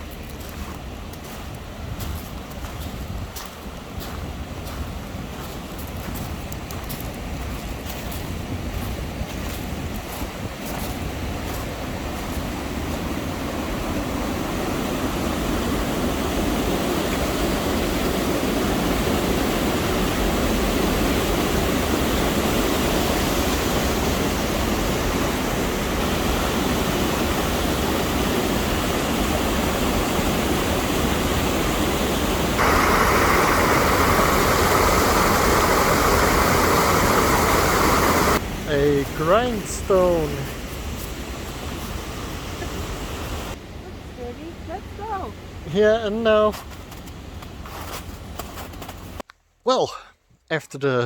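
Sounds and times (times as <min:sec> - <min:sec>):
water rushing over waterfall: 0:13.0 - 0:40.4.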